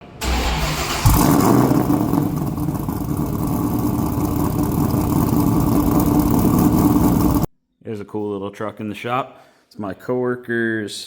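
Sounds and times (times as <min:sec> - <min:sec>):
car engine idling: 0:00.2 - 0:07.5.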